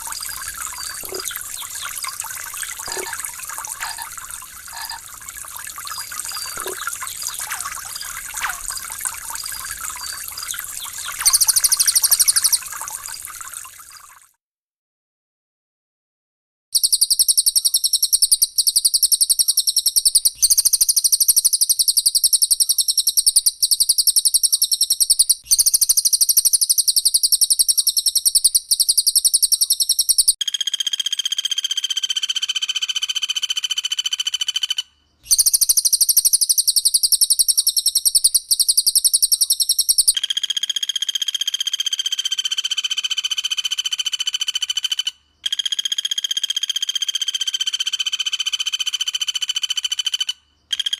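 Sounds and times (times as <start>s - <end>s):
high fast rattling bird trill: 0.0s - 13.2s
lower buzzing bird trill: 0.0s - 13.2s.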